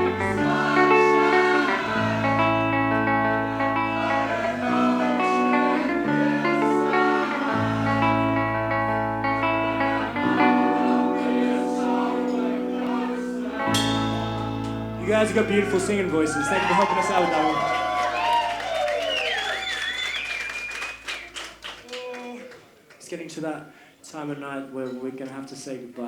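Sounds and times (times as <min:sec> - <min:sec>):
bass line: 0:00.0 - 0:07.0, 0:07.6 - 0:11.0, 0:13.4 - 0:18.0
guitar chords: 0:00.0 - 0:18.1.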